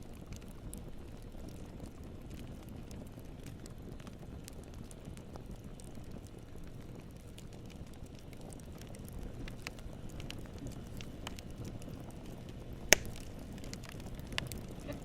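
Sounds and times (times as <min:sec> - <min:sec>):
burning wood crackling: 0:00.0 - 0:15.0
campfire flames rustling: 0:00.0 - 0:15.0
sharp fire pop: 0:12.9 - 0:14.5.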